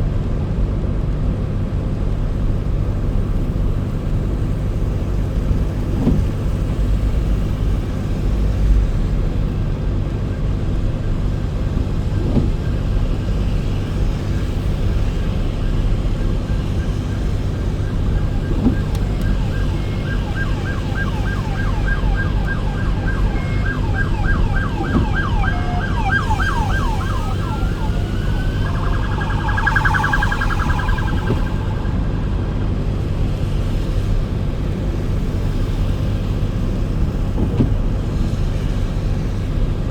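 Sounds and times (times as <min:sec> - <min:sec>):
car road and engine rumble: 0:00.0 - 0:39.9
emergency vehicle siren: 0:04.3 - 0:34.8.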